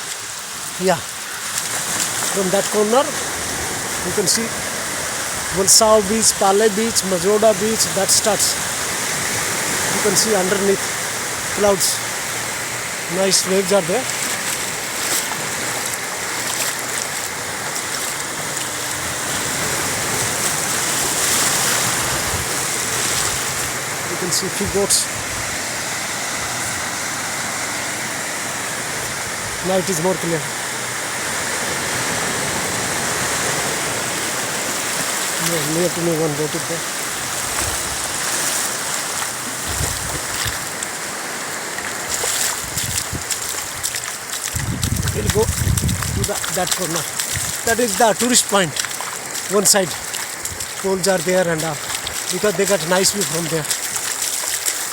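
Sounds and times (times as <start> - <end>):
sea waves breaking on beach: 0.0 - 54.9.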